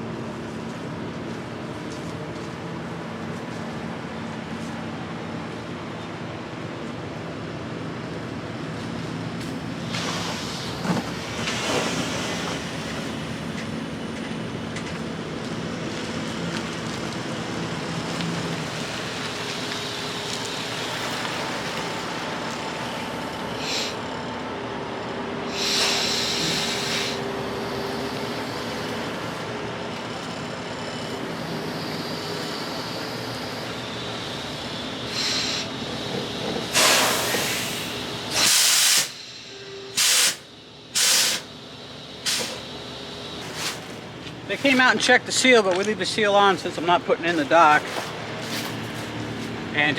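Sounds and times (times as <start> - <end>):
truck diesel engine running: 0.0 - 49.9
air brake hissing: 23.6 - 24.1, 25.5 - 28.2, 35.0 - 41.6, 42.2 - 42.7, 43.4 - 44.0.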